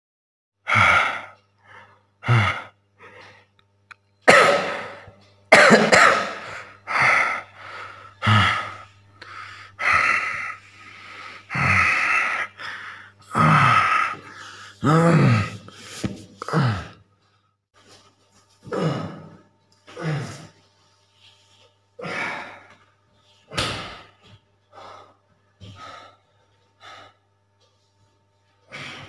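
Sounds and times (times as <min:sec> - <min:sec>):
low steady hum: 0:00.7 - 0:29.0
person coughing and gasping: 0:04.2 - 0:07.4.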